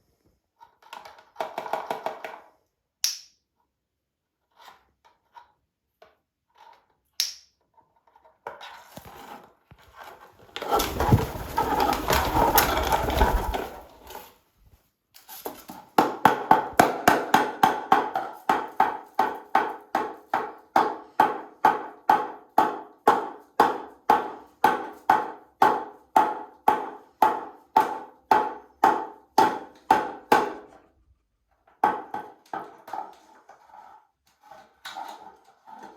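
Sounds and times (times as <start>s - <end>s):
dense rattling: 10.6s - 14.1s.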